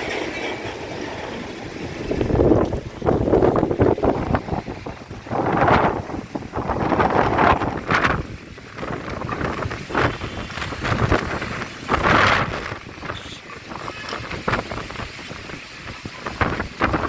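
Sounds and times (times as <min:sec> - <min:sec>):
rain falling: 0:00.0 - 0:17.0
wind buffeting microphone: 0:00.0 - 0:17.0.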